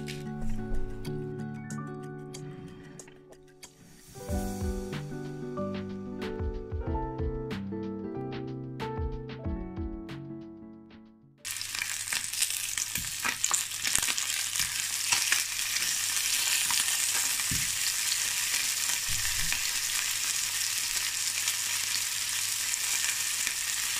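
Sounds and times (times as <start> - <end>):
music: 0.0 - 11.5
chicken sizzling in frying pan: 11.5 - 23.9.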